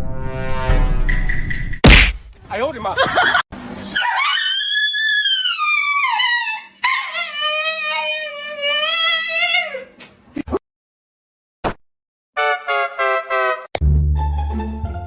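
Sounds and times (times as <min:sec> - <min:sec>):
dog howling: 0:04.0 - 0:09.9.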